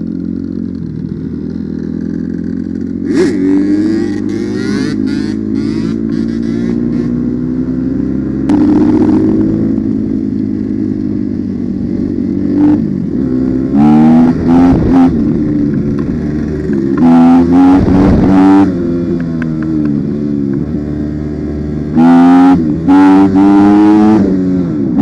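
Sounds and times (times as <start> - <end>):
dirt bike engine revving: 2.1 - 7.8, 12.1 - 19.1.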